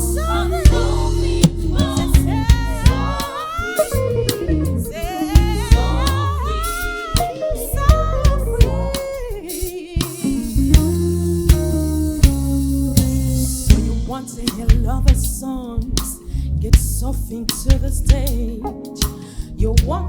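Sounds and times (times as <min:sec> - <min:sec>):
live band playing: 0:00.0 - 0:15.5
person singing wavering vocal runs: 0:00.0 - 0:15.9.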